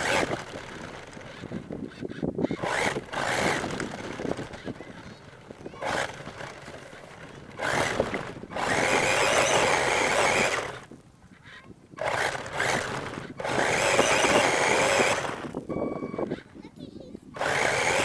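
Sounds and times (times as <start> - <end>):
toy truck motor whining: 0.0 - 10.9, 12.0 - 16.6, 17.2 - 18.0.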